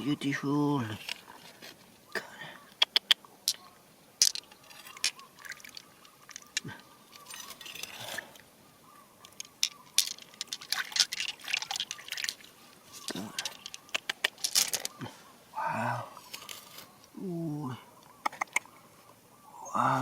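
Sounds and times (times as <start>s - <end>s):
wet stones clicking together: 2.7s - 3.6s, 4.2s - 7.8s, 9.2s - 15.0s, 18.2s - 18.7s
water dripping and splashing: 4.2s - 6.8s, 9.2s - 14.4s.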